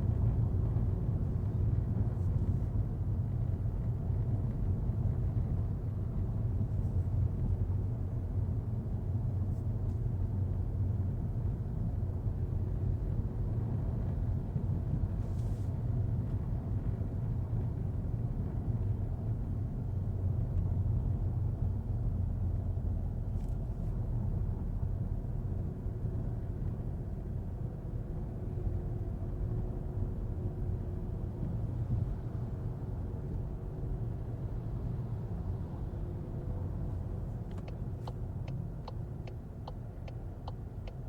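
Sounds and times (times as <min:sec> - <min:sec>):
car driving on wet road: 0:31.4 - 0:41.0.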